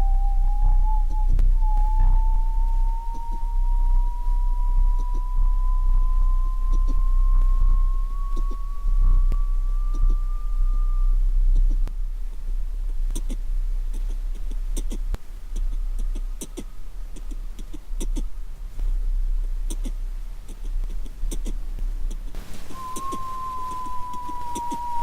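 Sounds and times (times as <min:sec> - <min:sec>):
faint steady whine: 0:00.0 - 0:25.0
mouth imitation of train rumble: 0:22.4 - 0:25.0.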